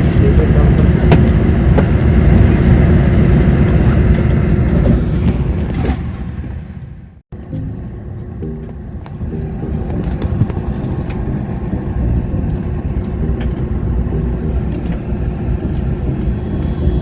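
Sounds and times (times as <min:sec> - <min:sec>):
vehicle engine rumble: 0:00.0 - 0:17.0
faint steady hum: 0:07.4 - 0:17.0.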